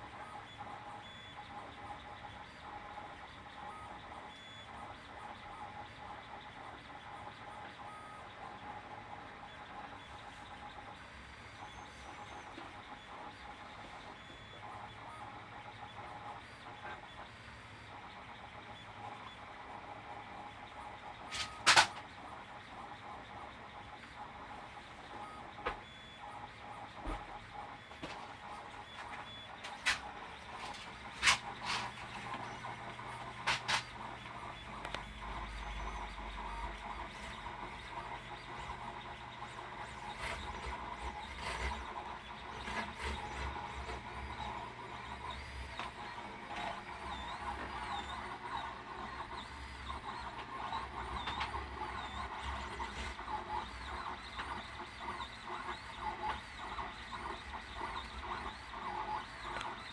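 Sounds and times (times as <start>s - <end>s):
mechanical hum: 0.0s - 59.9s
stepper motors whining: 26.2s - 59.9s.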